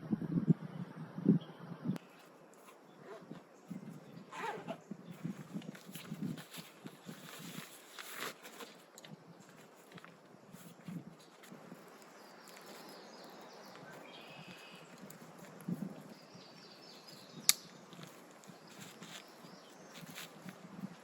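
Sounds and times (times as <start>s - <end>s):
faint bird calls: 12.0s - 15.2s.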